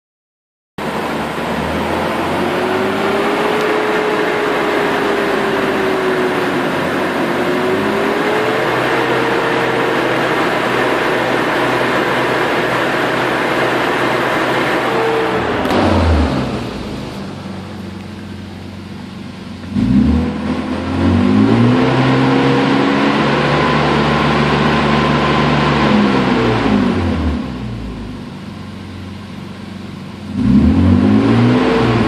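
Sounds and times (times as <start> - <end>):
thin whine drifting in pitch: 0.8 - 19.2
car engine running: 0.8 - 32.0.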